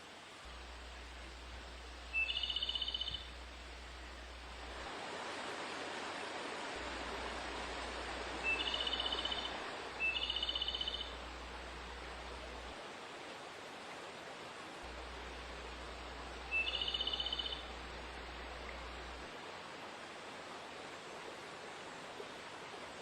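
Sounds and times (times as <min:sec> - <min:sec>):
bird buzzy pulsed trill call: 0:02.0 - 0:04.2, 0:08.4 - 0:11.4, 0:16.4 - 0:17.8.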